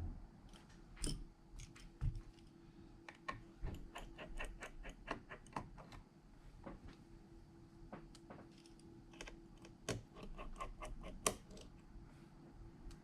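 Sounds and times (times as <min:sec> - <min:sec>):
faint steady hum: 0:00.0 - 0:13.0
hand tools clicking on phone parts: 0:08.6 - 0:11.7.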